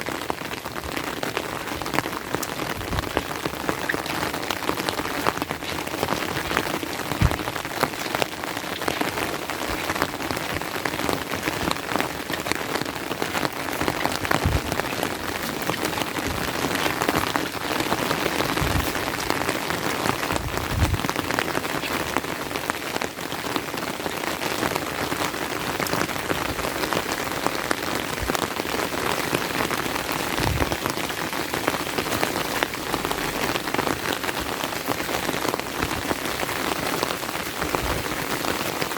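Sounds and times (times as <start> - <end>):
rain falling: 0.0 - 38.9
soft low thumps: 6.4 - 8.2, 14.0 - 17.4, 18.2 - 21.4.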